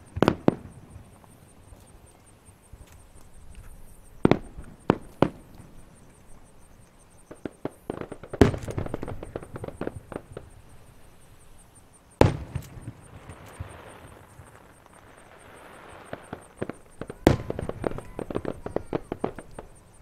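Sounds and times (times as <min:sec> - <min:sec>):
crackling reports: 0:00.0 - 0:20.0
fireworks bursting: 0:00.0 - 0:20.0
sharp bangs: 0:12.1 - 0:19.9.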